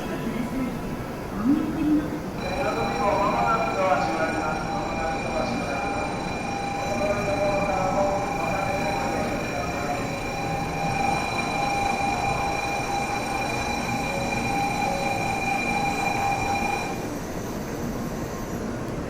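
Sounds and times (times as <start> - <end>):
train rushing: 0.0 - 19.0
high whining tones: 2.4 - 17.2.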